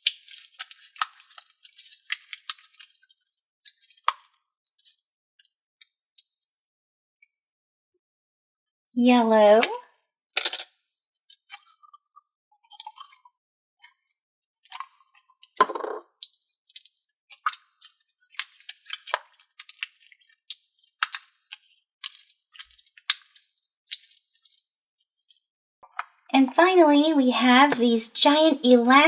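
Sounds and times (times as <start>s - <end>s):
slime squish: 0.0s - 3.1s, 16.8s - 24.6s.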